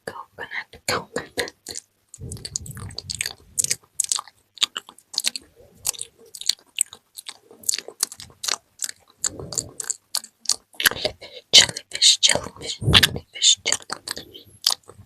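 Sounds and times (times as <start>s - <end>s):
wet mouth clicks and pops: 1.6s - 11.0s
low muffled rustles: 2.2s - 3.8s.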